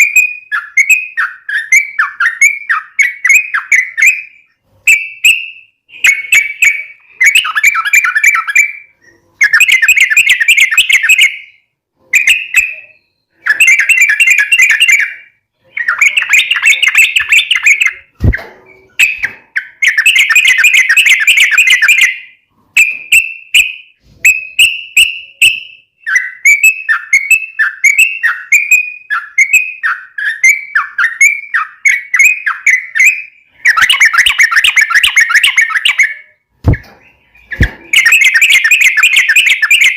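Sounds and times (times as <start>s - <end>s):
brief knock: 36.6s - 37.0s.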